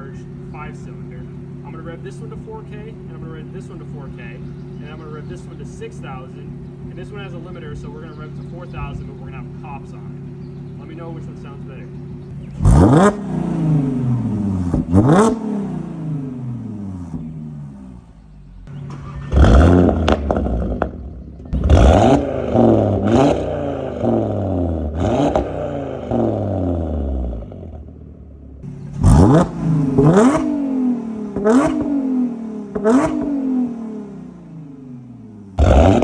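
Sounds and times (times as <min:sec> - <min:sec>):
car engine revving from idle: 0:12.0 - 0:36.0.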